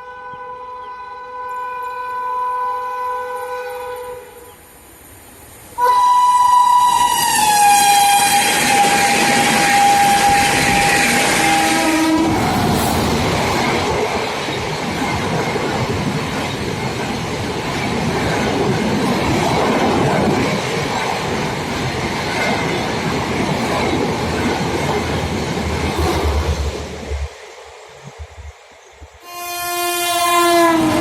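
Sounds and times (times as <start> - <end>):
locomotive horn: 0.0 - 4.6, 5.8 - 12.4, 29.2 - 31.0
train wheels clattering on rails: 7.3 - 28.5.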